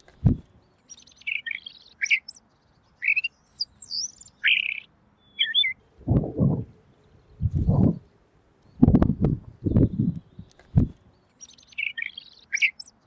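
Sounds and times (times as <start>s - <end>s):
low muffled bumps: 0.1s - 0.4s, 7.4s - 8.0s, 8.8s - 11.0s
bird singing whistled notes: 0.8s - 5.8s, 11.3s - 13.0s.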